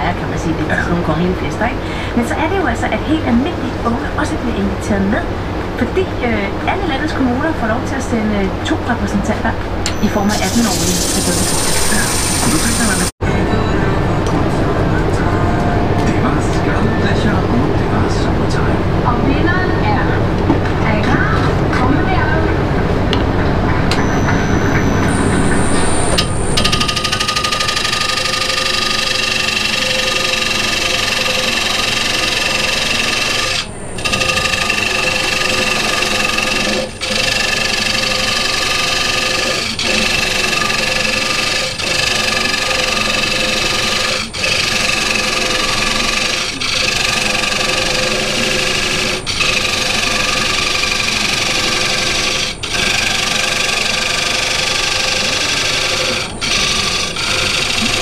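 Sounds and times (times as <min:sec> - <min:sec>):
wood lathe whining: 0:09.6 - 0:13.2, 0:23.1 - 0:58.0
tool scraping workpiece: 0:10.2 - 0:13.1, 0:24.2 - 0:58.0.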